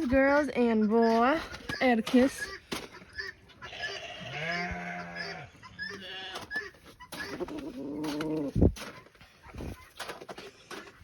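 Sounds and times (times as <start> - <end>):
farm animal calling: 0.0 - 10.9.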